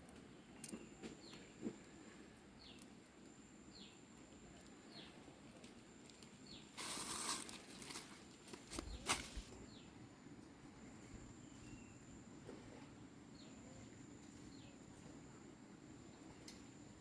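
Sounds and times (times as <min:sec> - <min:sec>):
rustling noise: 0:06.7 - 0:09.6.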